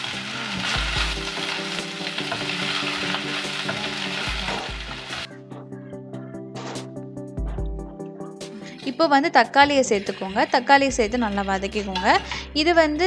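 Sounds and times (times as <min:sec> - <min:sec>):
vegetables sizzling in hot oil: 0:00.0 - 0:05.3, 0:08.8 - 0:12.4
soft background music: 0:00.0 - 0:13.0.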